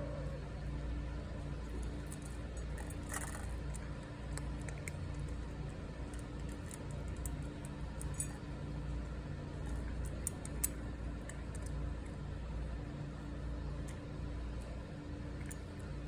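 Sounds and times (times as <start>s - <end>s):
steady low hum: 0.0s - 16.0s
cat crunching dry kibble: 1.4s - 12.2s.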